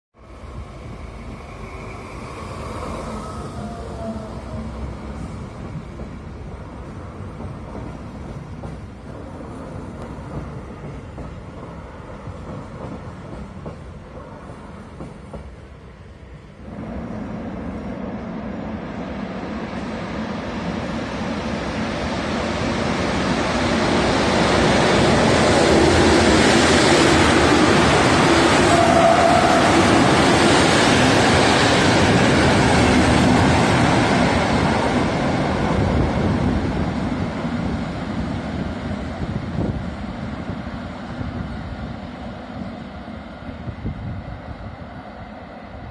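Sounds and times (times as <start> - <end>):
train coaches rolling past: 0.2 - 45.9.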